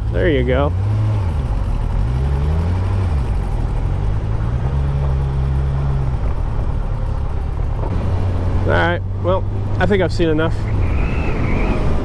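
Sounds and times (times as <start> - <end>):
motorcycle engine running: 0.0 - 10.4
wind noise: 9.5 - 12.0.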